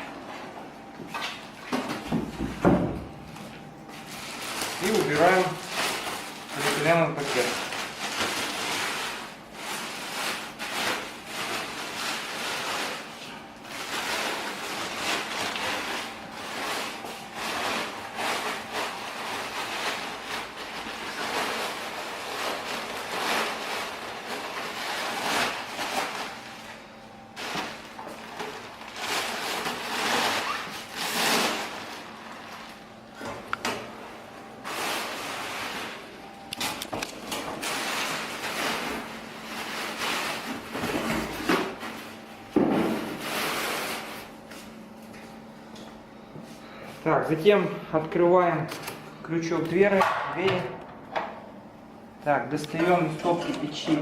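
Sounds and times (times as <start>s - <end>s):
plastic bag rustling: 3.8s - 33.1s, 34.5s - 44.7s.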